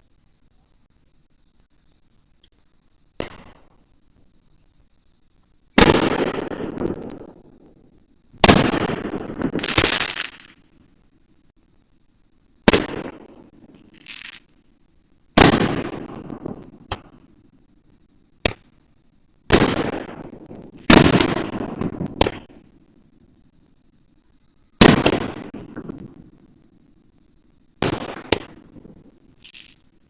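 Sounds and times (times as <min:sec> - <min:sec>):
fireworks bangs: 0:03.2 - 0:03.7, 0:05.8 - 0:07.6, 0:08.4 - 0:10.6, 0:12.6 - 0:14.4, 0:15.4 - 0:17.3, 0:19.5 - 0:22.7, 0:24.8 - 0:26.4, 0:27.8 - 0:29.8
fireworks crackling: 0:08.4 - 0:10.6, 0:13.9 - 0:14.5, 0:19.5 - 0:22.6.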